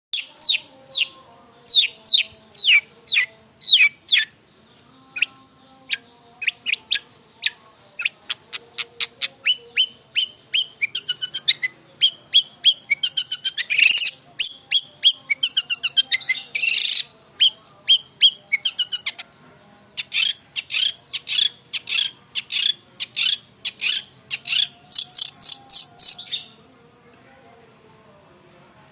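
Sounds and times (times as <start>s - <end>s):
shrike singing: 0.2s - 19.3s, 20.0s - 26.7s.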